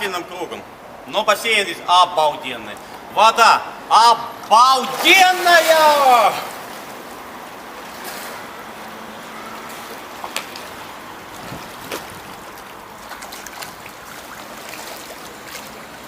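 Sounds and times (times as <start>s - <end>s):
pool water splashing and lapping: 0.0s - 16.0s
small sharp splashes: 4.4s - 7.2s, 9.6s - 16.0s.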